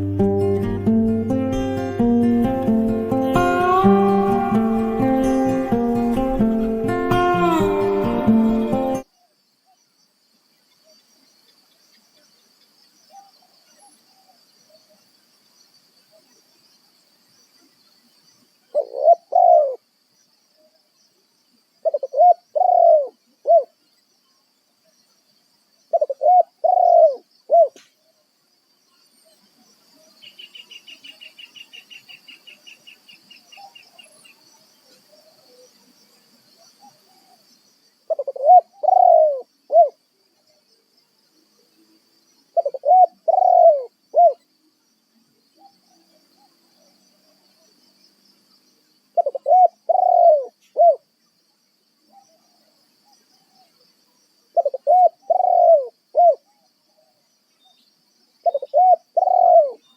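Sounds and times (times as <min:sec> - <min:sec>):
dove cooing: 0:18.8 - 0:19.8, 0:21.8 - 0:23.7, 0:25.9 - 0:27.8, 0:38.1 - 0:40.0, 0:42.6 - 0:44.4, 0:49.2 - 0:51.0, 0:54.6 - 0:56.6, 0:58.4 - 0:59.8.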